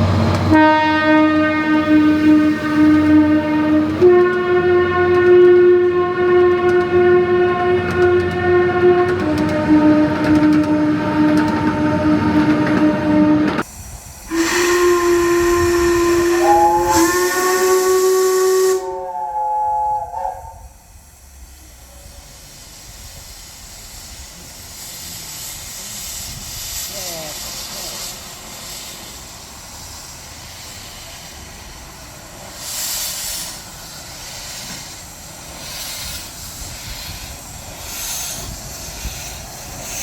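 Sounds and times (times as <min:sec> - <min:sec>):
steam hissing: 0:00.0 - 0:40.0
steam locomotive whistle blasts: 0:00.4 - 0:13.6, 0:14.3 - 0:20.8.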